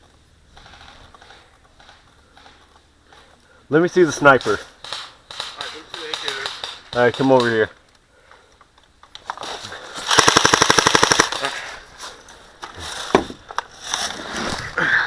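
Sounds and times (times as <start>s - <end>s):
airsoft rifle full-auto burst: 10.1s - 11.5s.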